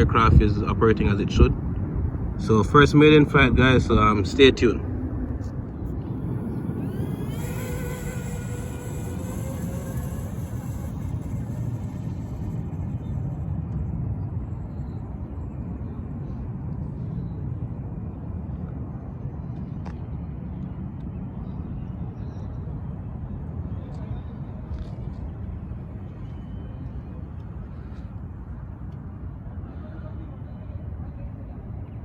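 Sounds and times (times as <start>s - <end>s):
low outdoor rumble: 0.0s - 32.0s.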